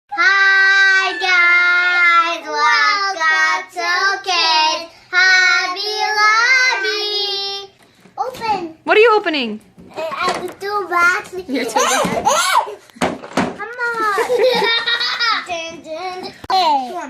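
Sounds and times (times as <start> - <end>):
child singing: 0.1 - 7.8.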